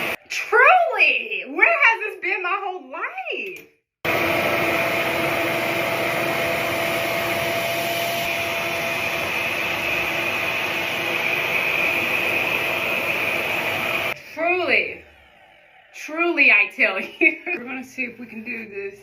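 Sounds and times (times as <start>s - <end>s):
hair dryer suction whine: 0.0s - 0.2s, 4.1s - 17.6s.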